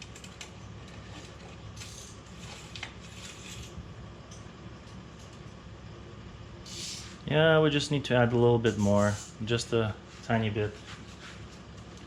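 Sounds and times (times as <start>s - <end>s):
soft scrapes: 10.0s - 11.6s.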